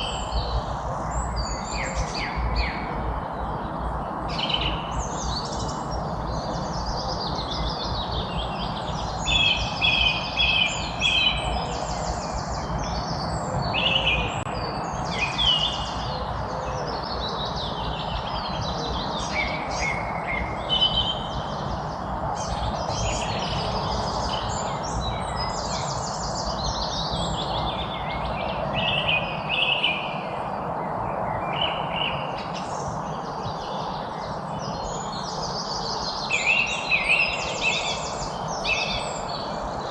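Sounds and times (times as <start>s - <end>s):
songbirds singing and chirping: 0.0s - 39.9s
steady background noise: 0.0s - 39.9s.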